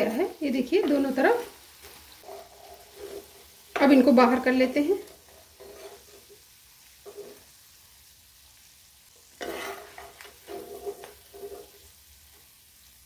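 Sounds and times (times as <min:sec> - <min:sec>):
food sizzling faintly: 0:00.0 - 0:13.0
metal spoon scraping a pan: 0:00.7 - 0:07.5, 0:09.2 - 0:12.5.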